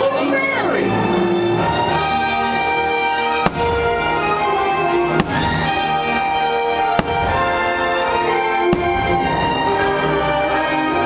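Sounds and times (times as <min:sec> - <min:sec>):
loud show music: 0:00.0 - 0:11.0
firework shells bursting: 0:05.1 - 0:09.8.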